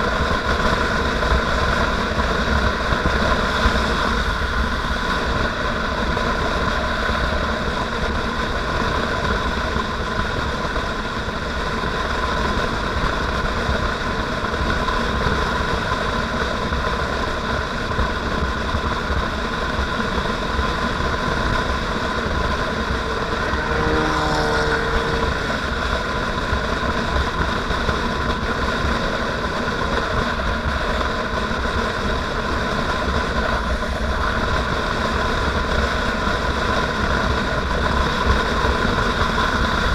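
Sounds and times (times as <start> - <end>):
motorcycle engine running: 0.0 - 39.9
short pitched sound: 22.8 - 26.4.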